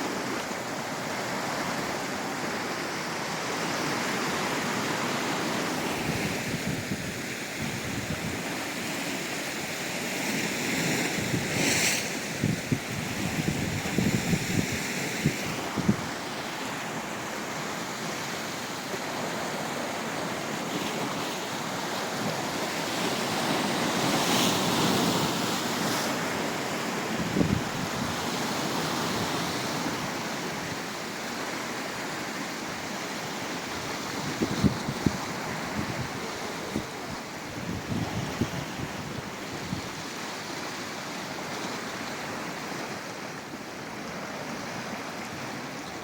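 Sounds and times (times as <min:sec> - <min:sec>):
sea surf washing: 0:00.0 - 0:46.0
wind blowing across microphone: 0:05.5 - 0:09.0, 0:10.4 - 0:16.6, 0:21.0 - 0:30.9, 0:33.6 - 0:40.6.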